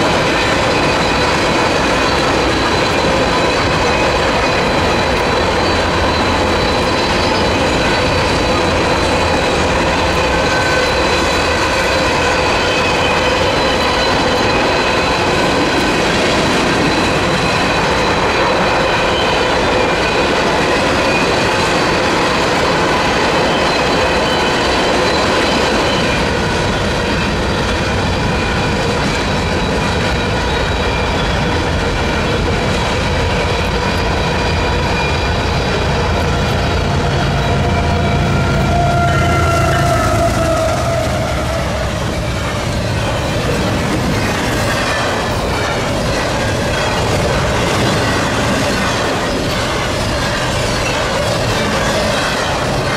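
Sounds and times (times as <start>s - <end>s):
high-pitched wheel squealing: 0.0s - 20.2s, 33.3s - 52.9s
train wheels clacking on rails: 0.0s - 52.9s.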